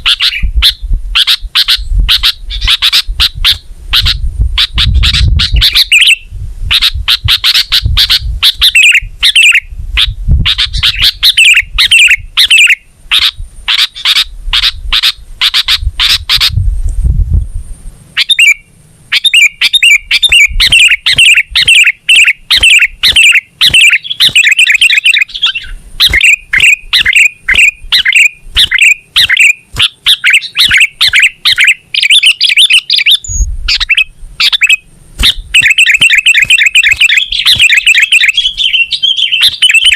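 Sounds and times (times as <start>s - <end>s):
bird chirping song: 0.0s - 16.6s, 18.2s - 39.9s
low rumble: 15.8s - 18.0s.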